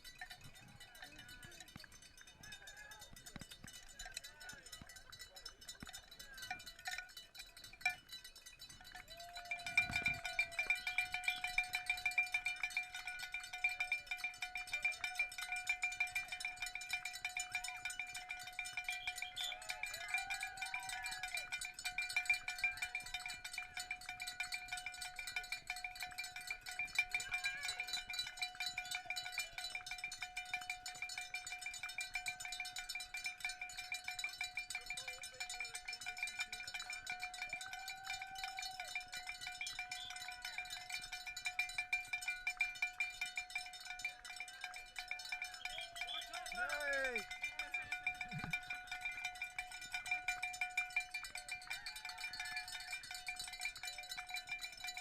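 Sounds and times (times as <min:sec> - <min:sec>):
cowbell shaken rapidly: 0:00.0 - 0:55.0.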